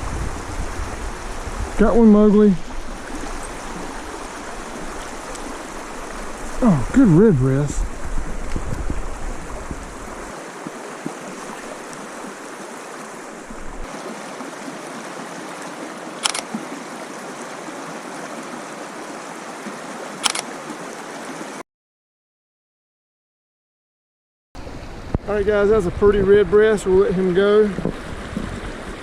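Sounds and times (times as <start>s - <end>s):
river water flowing: 0.0s - 21.6s, 24.6s - 26.0s, 26.6s - 29.0s
sharp clicks: 16.2s - 16.5s.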